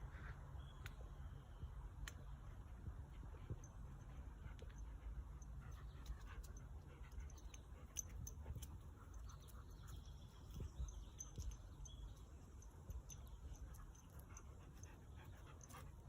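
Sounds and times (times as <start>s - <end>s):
dog panting: 2.7s - 11.0s, 13.4s - 16.0s
faint bird chirps: 5.4s - 16.0s.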